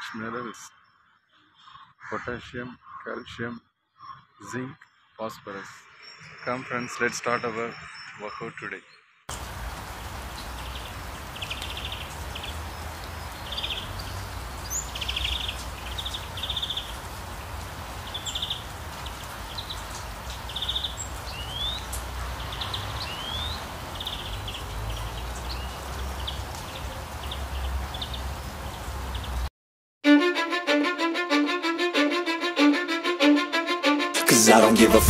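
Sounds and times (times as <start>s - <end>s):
birds calling: 0.0s - 29.5s
outdoor background hiss: 9.3s - 29.5s.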